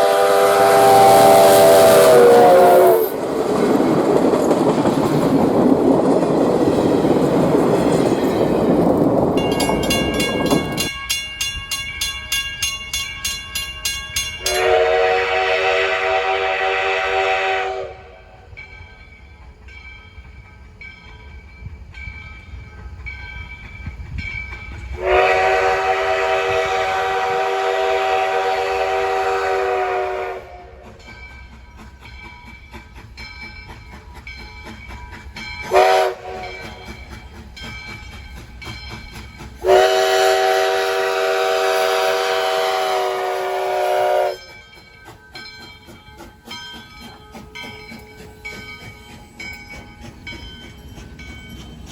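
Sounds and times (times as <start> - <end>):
steam whistle blasts: 0.0 - 3.2, 14.4 - 18.5, 25.0 - 31.0, 35.7 - 37.0, 39.6 - 44.6
moving train rumbling and clicking: 0.0 - 51.9.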